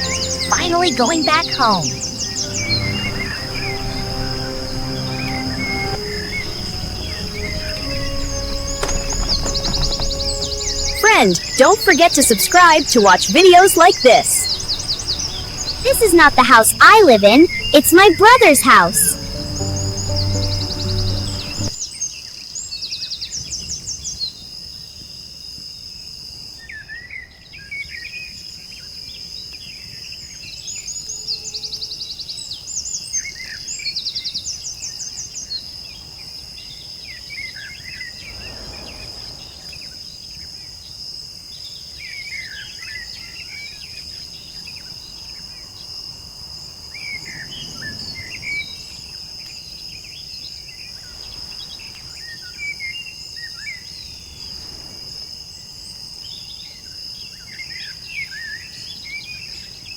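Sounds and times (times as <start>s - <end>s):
birds chirping and trilling: 0.0s - 21.8s
high insect drone: 1.8s - 11.6s, 13.8s - 18.2s.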